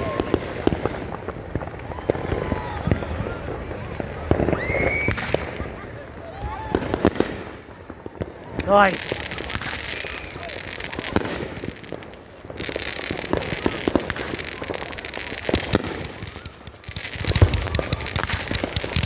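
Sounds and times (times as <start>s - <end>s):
fireworks bursting overhead: 0.0s - 19.0s
continuous crackling hiss: 8.6s - 19.0s
sharp pops: 8.6s - 19.0s.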